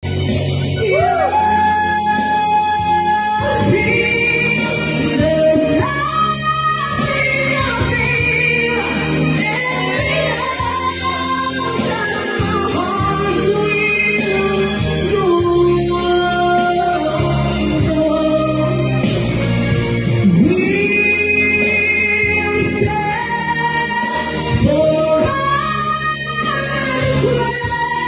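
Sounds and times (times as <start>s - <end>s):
musical accompaniment: 0.0s - 28.0s.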